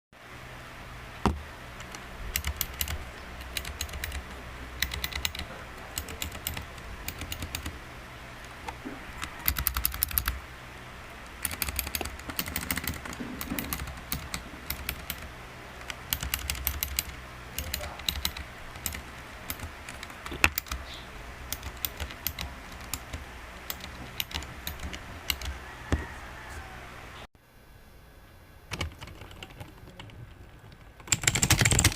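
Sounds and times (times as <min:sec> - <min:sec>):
steady low hum: 0:00.2 - 0:31.9
mechanical keyboard key clicks: 0:01.8 - 0:04.2, 0:04.8 - 0:05.4, 0:06.0 - 0:07.7, 0:09.2 - 0:10.4, 0:11.4 - 0:15.2, 0:15.8 - 0:20.8, 0:21.5 - 0:25.5.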